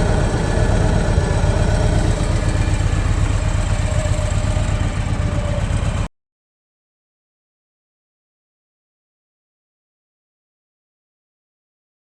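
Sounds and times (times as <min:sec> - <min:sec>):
motorcycle engine idling: 0:00.0 - 0:06.1.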